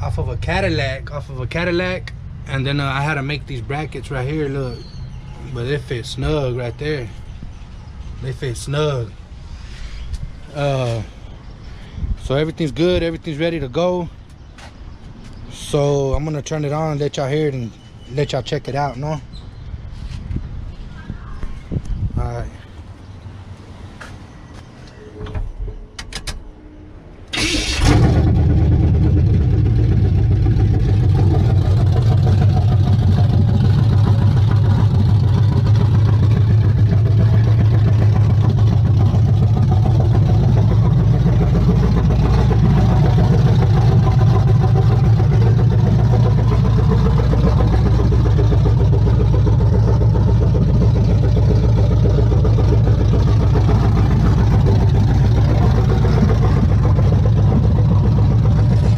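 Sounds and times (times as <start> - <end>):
engine starting and running: 24.9 - 58.9
engine starter clicks: 27.3 - 28.9.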